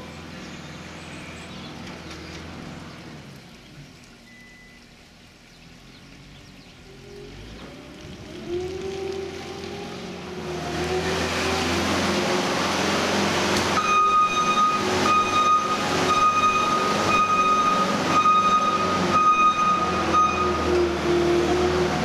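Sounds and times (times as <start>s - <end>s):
diesel engine revving: 5.9s - 22.0s
reversing alarm beeping: 13.8s - 21.0s.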